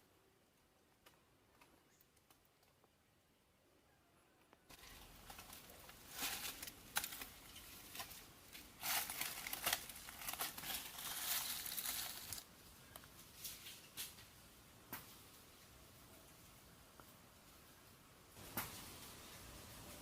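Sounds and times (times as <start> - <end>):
crinkling rustling handling noise: 4.7 - 14.3.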